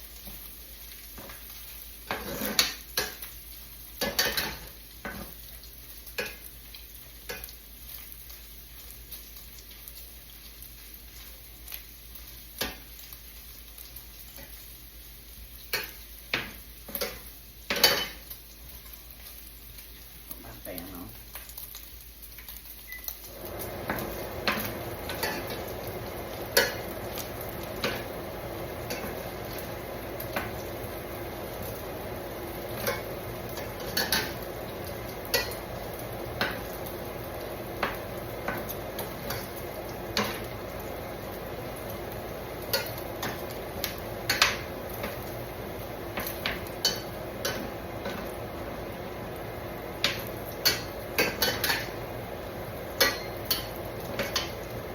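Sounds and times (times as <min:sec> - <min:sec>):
bacon sizzling in a frying pan: 0:00.0 - 0:54.9
utensil scraping a pan: 0:02.1 - 0:02.8.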